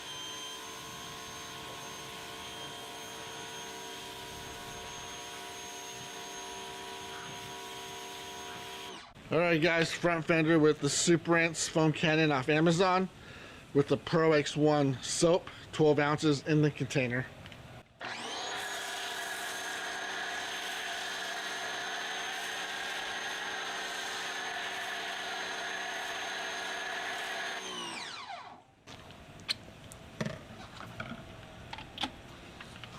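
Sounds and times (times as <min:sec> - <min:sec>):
pressure washer motor running: 0:18.0 - 0:27.9.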